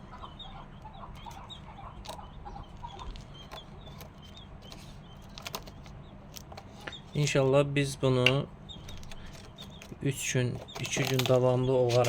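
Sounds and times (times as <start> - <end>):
chicks peeping: 0.0 - 12.0
steady low hum: 0.0 - 12.0.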